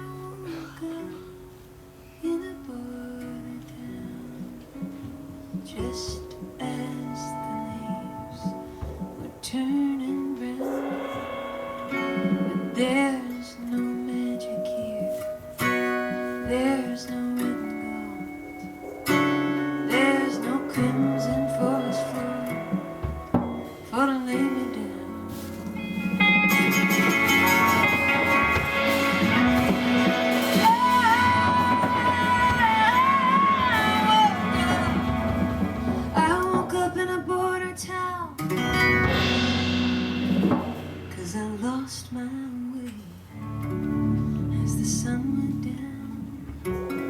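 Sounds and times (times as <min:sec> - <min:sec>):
strummed acoustic guitar: 0:00.0 - 0:47.0
woman singing high note: 0:09.4 - 0:25.5, 0:27.2 - 0:38.4
folk band playing: 0:18.3 - 0:24.0, 0:25.3 - 0:37.0, 0:38.6 - 0:41.4.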